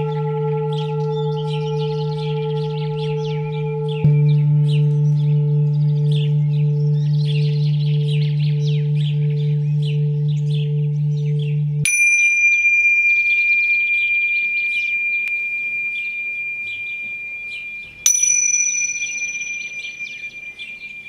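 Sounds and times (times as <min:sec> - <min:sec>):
birds chirping: 0:00.0 - 0:21.0
singing bowl tone: 0:00.0 - 0:21.0
small bell struck: 0:11.9 - 0:21.0.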